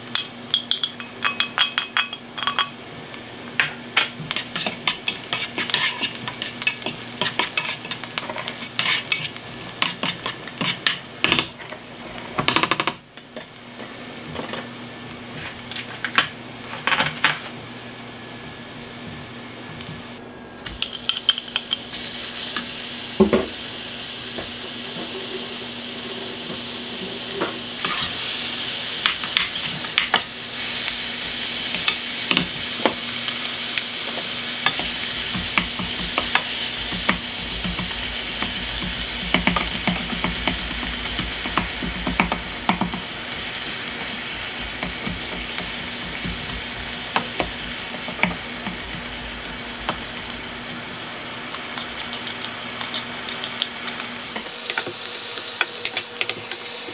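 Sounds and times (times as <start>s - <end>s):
food sizzling in oil: 0.0s - 12.4s, 20.8s - 56.9s
spatula scraping pan: 4.3s - 10.9s, 25.0s - 28.3s.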